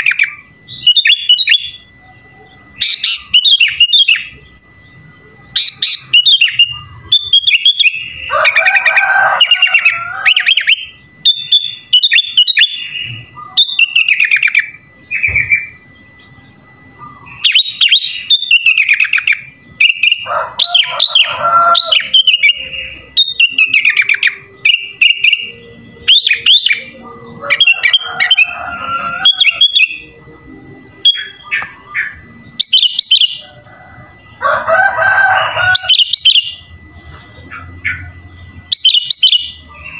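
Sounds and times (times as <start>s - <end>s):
bulbul singing whistled phrases: 0.0s - 33.4s, 35.5s - 39.9s
bird chattering: 17.0s - 30.1s, 35.5s - 39.9s.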